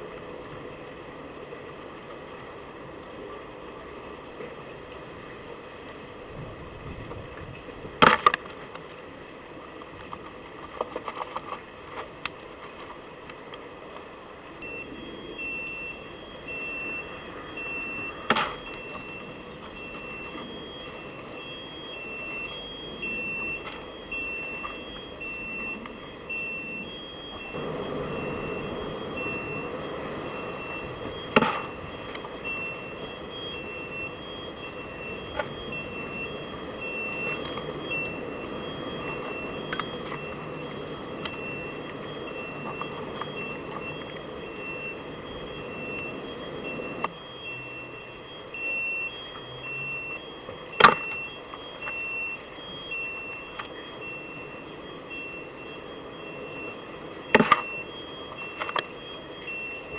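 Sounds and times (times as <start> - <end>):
outdoor background noise: 0.0 - 59.9
electronic beeping: 14.6 - 59.9.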